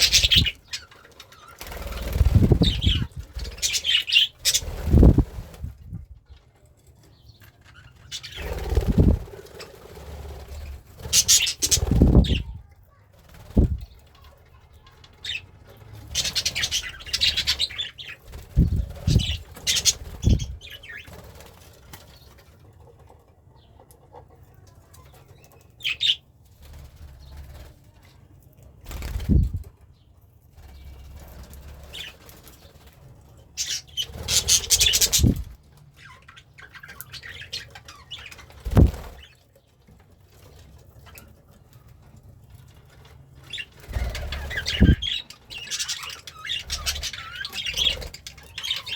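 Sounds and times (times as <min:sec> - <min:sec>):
budgie wings flapping: 0:01.6 - 0:03.8, 0:04.4 - 0:06.0, 0:08.3 - 0:12.5, 0:18.3 - 0:22.0, 0:28.9 - 0:29.6, 0:33.6 - 0:35.6, 0:38.3 - 0:39.3, 0:43.5 - 0:45.2.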